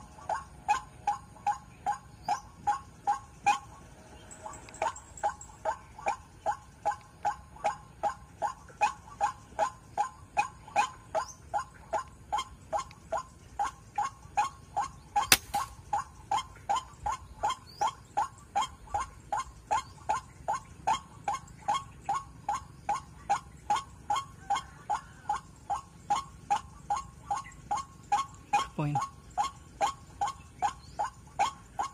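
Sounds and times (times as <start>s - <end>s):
waterhen calling: 4.5s - 31.9s
sharp crack: 15.3s - 15.8s.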